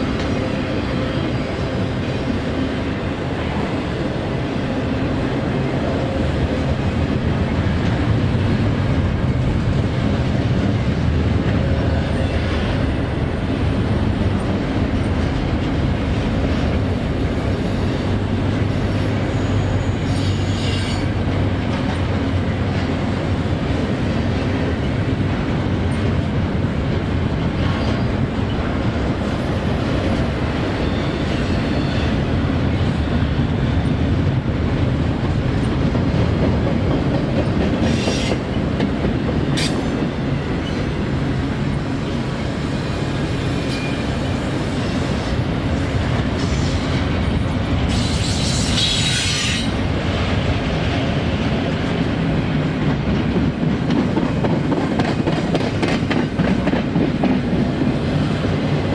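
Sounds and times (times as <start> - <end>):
freight train cars rolling: 0.0 - 58.9
high-pitched wheel squeal: 19.3 - 21.1.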